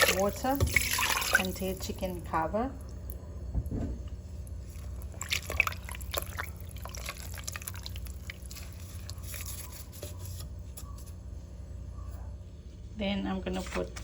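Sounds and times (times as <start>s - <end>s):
water pouring into a pot: 0.0s - 1.6s, 4.7s - 8.6s.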